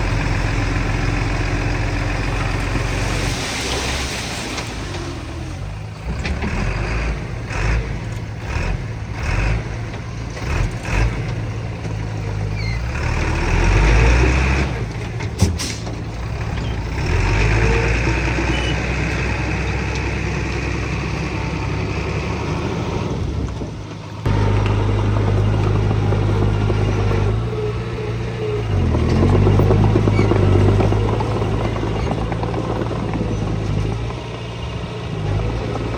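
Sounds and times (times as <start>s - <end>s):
heavy machinery diesel engines: 0.0s - 35.9s.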